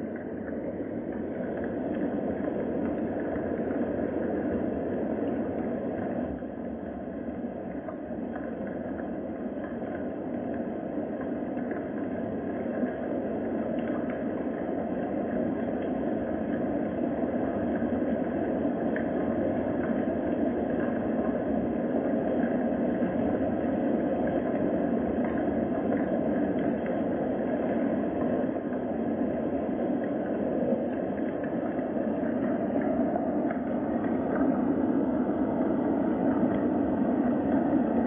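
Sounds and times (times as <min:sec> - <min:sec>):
steady rain: 0:09.8 - 0:38.0.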